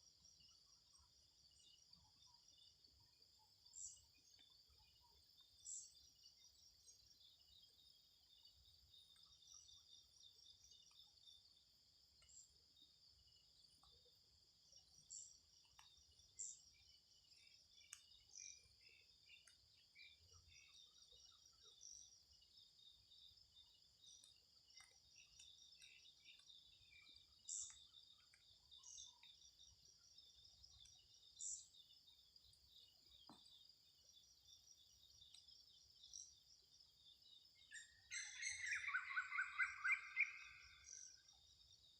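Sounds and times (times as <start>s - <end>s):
insects chirring: 14.8s - 41.9s
high bird chirps: 38.1s - 40.6s.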